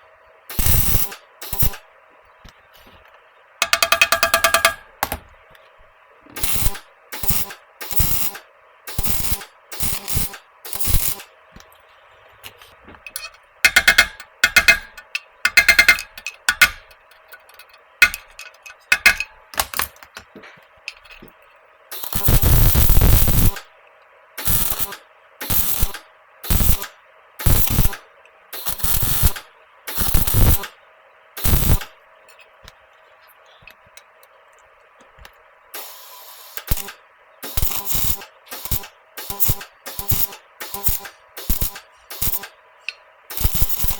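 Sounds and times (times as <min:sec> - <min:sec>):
electric welder bursts: 0:00.5 - 0:01.9, 0:06.3 - 0:11.4, 0:13.6 - 0:16.9, 0:21.9 - 0:23.7, 0:24.4 - 0:30.8, 0:31.4 - 0:32.0, 0:35.7 - 0:42.6, 0:43.3 - 0:43.9.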